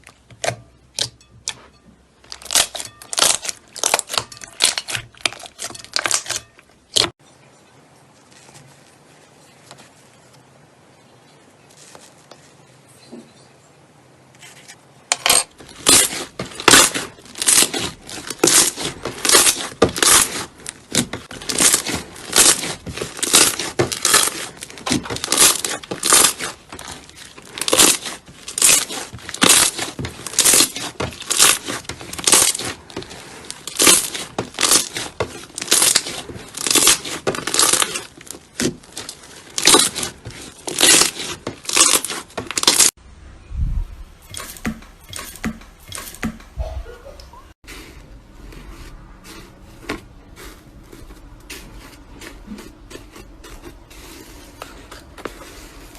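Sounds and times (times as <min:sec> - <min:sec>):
slime squishing by hand: 0:00.0 - 0:07.2, 0:15.5 - 0:42.9.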